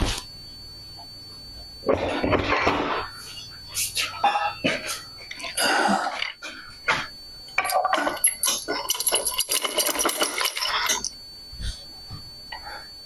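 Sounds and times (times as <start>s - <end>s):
metal parts and tools clinking: 7.6s - 11.2s.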